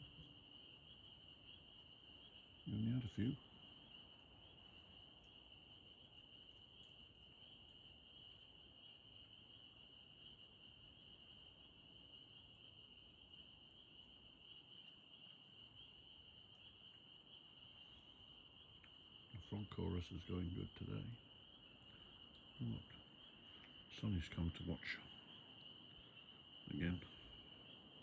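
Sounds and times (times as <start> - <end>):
faint frog chorus trilling: 0.0 - 28.0.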